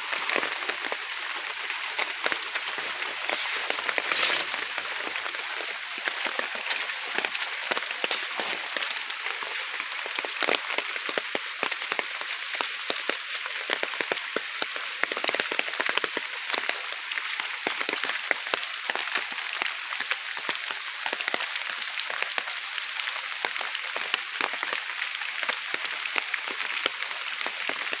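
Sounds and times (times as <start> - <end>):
heavy rain falling: 0.0 - 12.3.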